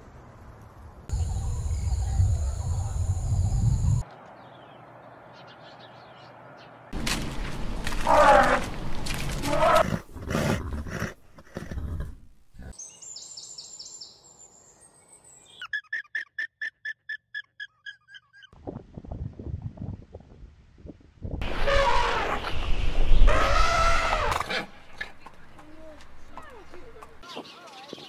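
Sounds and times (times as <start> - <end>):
camel grumbling call: 8.0 - 8.8, 9.4 - 12.7
horse whinnying: 9.4 - 12.2
high bird chirps: 12.8 - 18.6.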